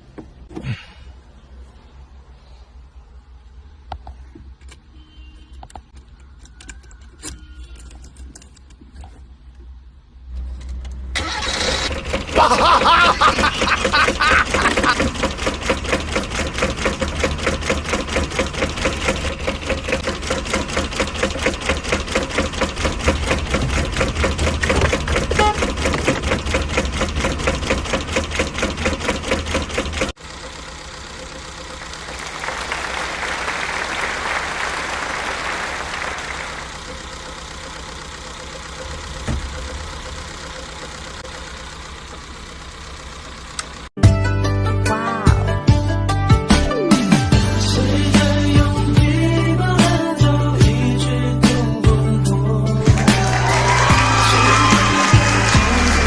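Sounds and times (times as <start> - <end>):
car engine idling with clatter: 5.8 - 44.0.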